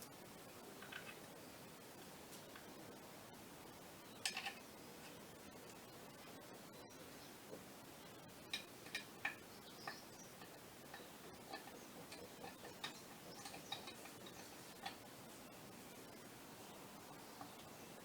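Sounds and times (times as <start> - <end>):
faint steady background noise: 0.0 - 18.0
clicks of hand tools and metal parts: 4.2 - 4.7, 8.5 - 15.0.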